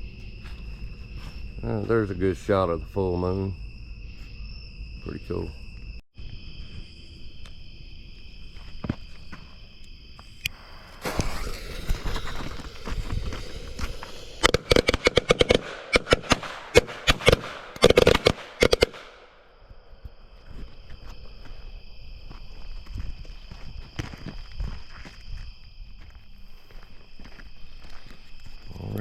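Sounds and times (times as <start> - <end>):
crickets chirping: 0.0 - 29.0
firecrackers banging: 10.5 - 19.3.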